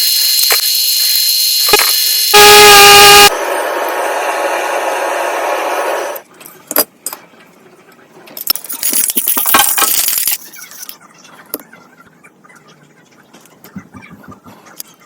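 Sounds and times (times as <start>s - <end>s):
loud steady machine noise: 0.0s - 6.2s
small metal clicks and clinks: 8.3s - 10.4s.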